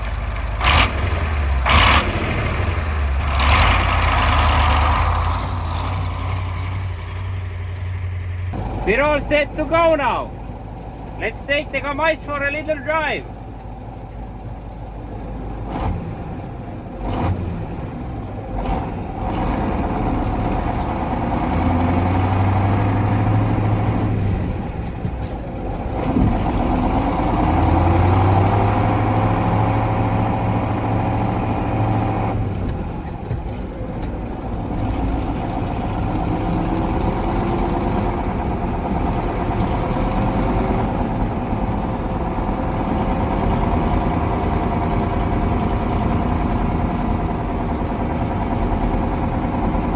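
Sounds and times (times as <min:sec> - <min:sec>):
truck diesel engine driving: 0:00.0 - 0:49.9.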